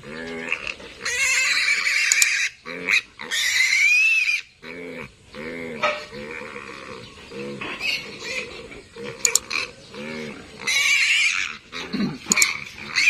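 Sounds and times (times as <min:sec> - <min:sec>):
piglets screaming: 0:00.0 - 0:13.0
piglet grunts: 0:04.7 - 0:13.0.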